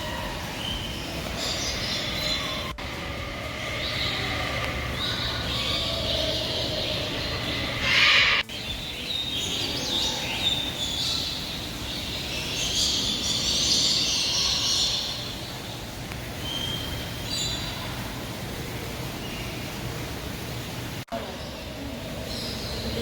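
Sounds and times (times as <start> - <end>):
steady low hum: 0.0 - 12.3
birds chattering and calling: 0.0 - 23.0
loud harsh bird squawk: 3.6 - 8.5.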